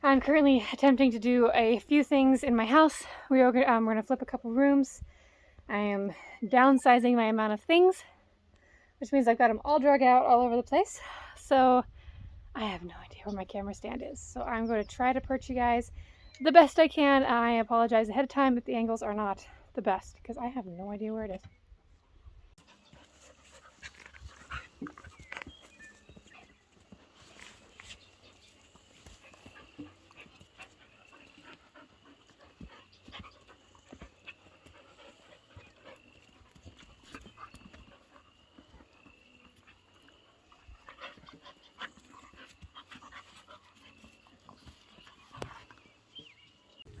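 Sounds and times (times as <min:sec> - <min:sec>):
dog panting: 0:22.6 - 0:46.1.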